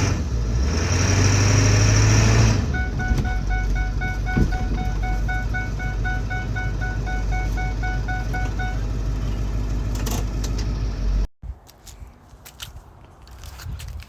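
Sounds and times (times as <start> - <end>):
diesel engine exhaust rumble: 0.0 - 11.3.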